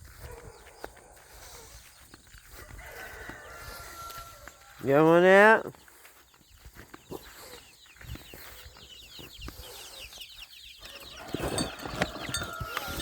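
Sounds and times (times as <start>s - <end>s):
poultry peeping and clucking: 0.0s - 13.0s
birds scratching and rustling: 10.8s - 13.0s.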